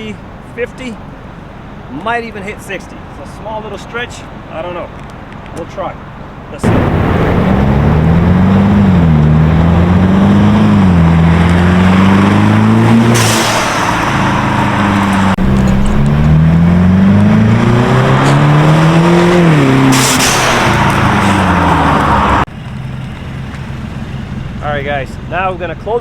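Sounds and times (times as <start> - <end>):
car engine accelerating: 6.6 - 25.4.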